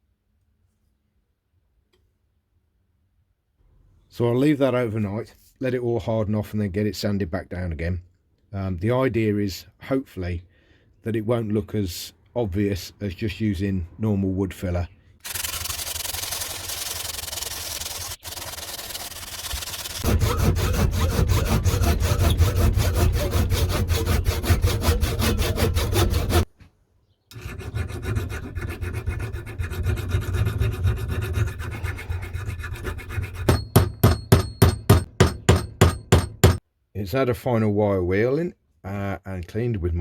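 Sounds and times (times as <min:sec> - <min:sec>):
sandpaper rubbing on wood: 0:15.2 - 0:26.5, 0:27.4 - 0:33.7
sharp metallic taps: 0:33.5 - 0:36.6.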